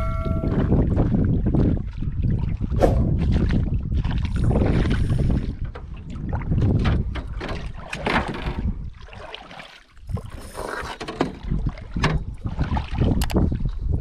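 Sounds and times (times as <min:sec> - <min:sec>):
water lapping at boat: 0:00.0 - 0:14.0
wind rumbling on microphone: 0:00.0 - 0:14.0
gear knocking against boat: 0:05.5 - 0:08.8.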